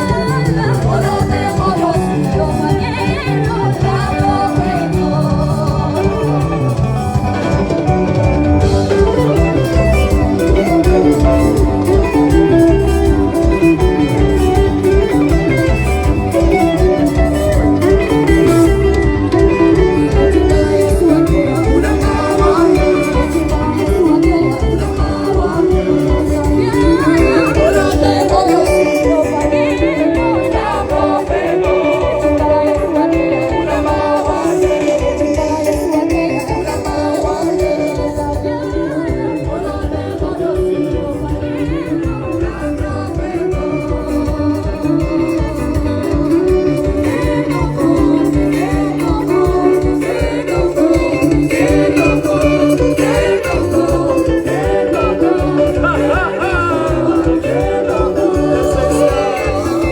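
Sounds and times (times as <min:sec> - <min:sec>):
guitar: 0:00.0 - 0:59.9
person singing: 0:00.0 - 0:59.9
steady beat: 0:00.1 - 0:59.9.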